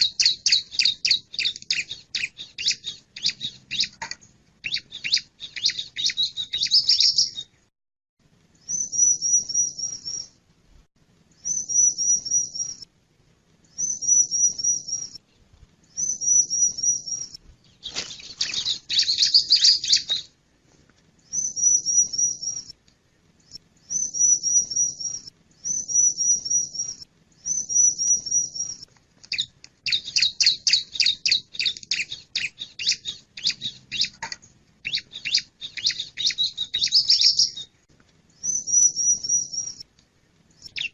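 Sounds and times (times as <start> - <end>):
bird chattering: 17.9 - 20.3, 27.6 - 37.7.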